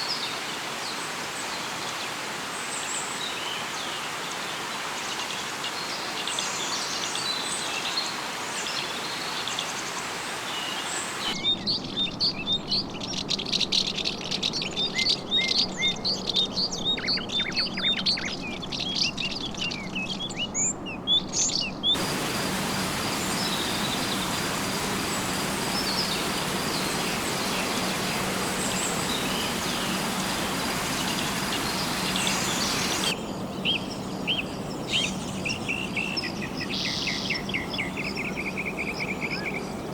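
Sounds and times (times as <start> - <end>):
bird calls: 22.0 - 33.2
steady hiss: 22.0 - 33.2
dense chorus of chirping birds: 22.0 - 39.9.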